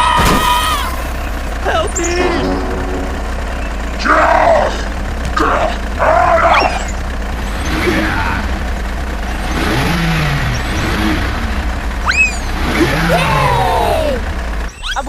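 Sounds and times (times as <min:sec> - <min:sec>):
truck engine rumble: 0:00.0 - 0:15.0
short rising whistle: 0:12.0 - 0:12.5.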